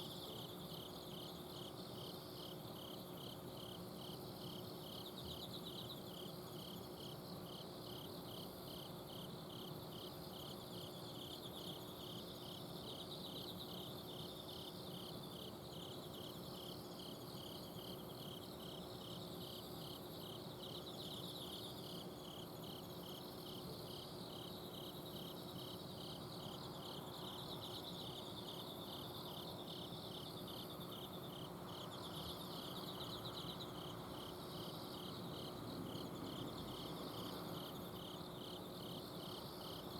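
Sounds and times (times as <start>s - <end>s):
cricket chirping: 0.0s - 39.9s
insect trills: 0.0s - 39.9s.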